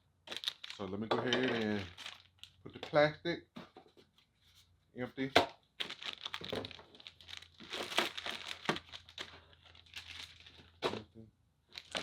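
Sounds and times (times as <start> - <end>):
plastic packaging crinkling: 0.3 - 2.6, 5.8 - 11.0, 11.7 - 12.0.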